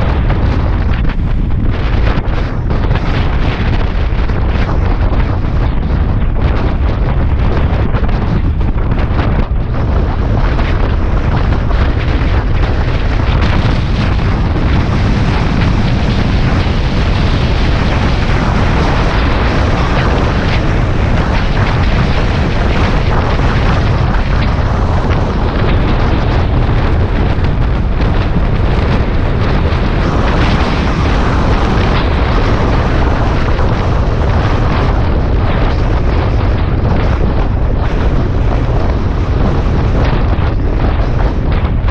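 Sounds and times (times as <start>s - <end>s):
wind buffeting microphone: 0.0s - 41.9s
road noise: 9.5s - 39.5s.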